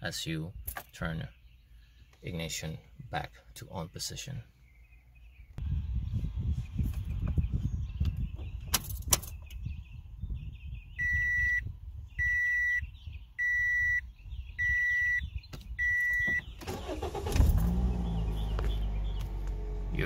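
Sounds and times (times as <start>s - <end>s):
dashboard warning chime beeping: 11.0s - 11.6s, 12.2s - 12.8s, 13.4s - 14.0s, 14.6s - 15.2s, 15.8s - 16.5s.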